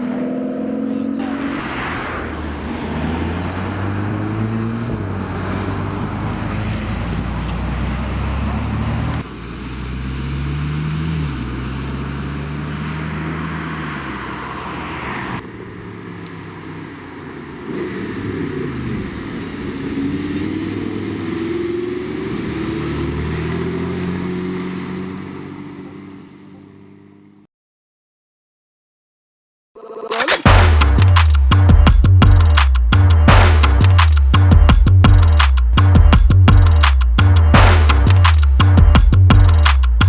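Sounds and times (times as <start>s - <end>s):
car engines accelerating: 0.0s - 27.4s, 30.2s - 40.0s.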